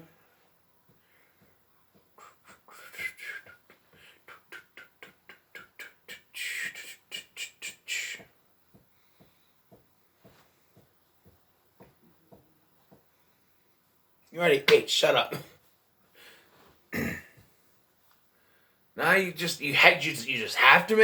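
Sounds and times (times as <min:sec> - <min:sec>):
mouth hiss: 0:02.2 - 0:08.3.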